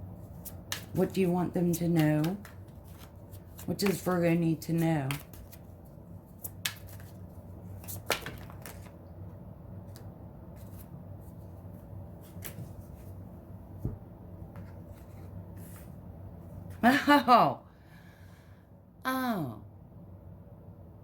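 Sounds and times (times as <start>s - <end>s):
cards being shuffled: 0.2s - 9.0s, 9.8s - 11.5s, 12.2s - 13.2s.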